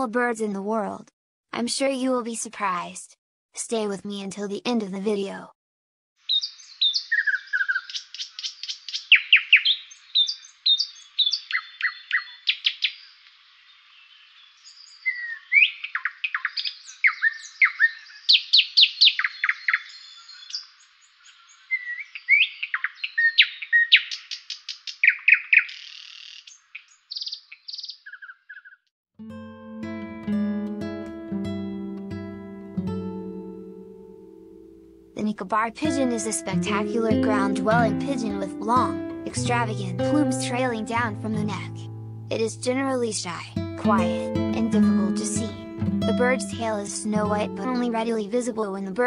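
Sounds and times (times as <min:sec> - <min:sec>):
songbirds chirping and trilling: 0:06.2 - 0:28.9.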